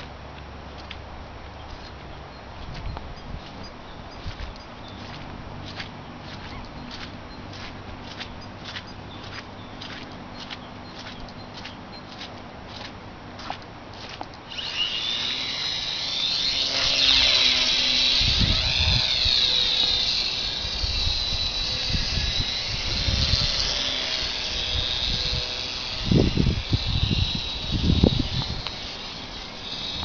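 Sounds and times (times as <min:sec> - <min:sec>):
model plane motor whining: 0:14.5 - 0:30.0.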